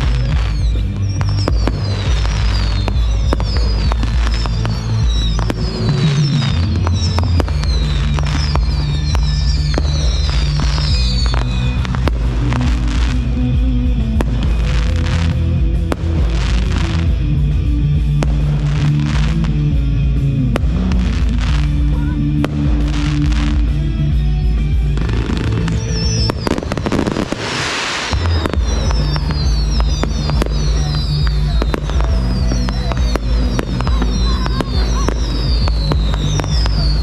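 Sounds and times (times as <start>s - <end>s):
high falling whistles: 0.0s - 12.9s, 25.4s - 37.0s
fireworks bangs and crackle: 0.0s - 37.0s
loud music: 0.0s - 37.0s
rushing firework burst: 0.0s - 37.0s.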